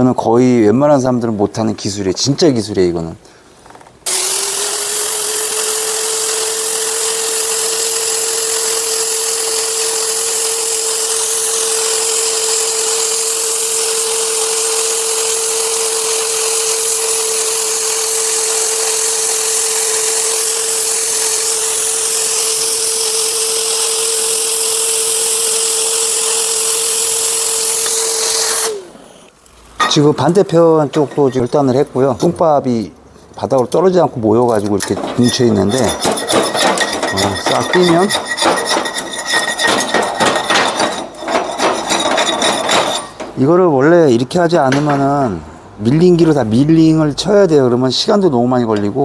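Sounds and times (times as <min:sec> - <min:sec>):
cutting torch hissing and whistling: 0:04.1 - 0:29.4.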